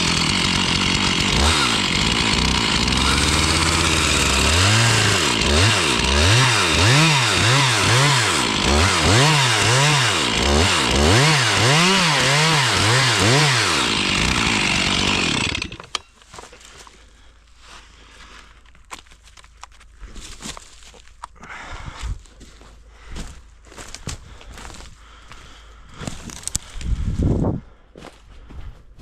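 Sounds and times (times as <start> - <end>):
chainsaw revving: 0.0 - 16.0
brush snapping and rustling: 26.1 - 26.9.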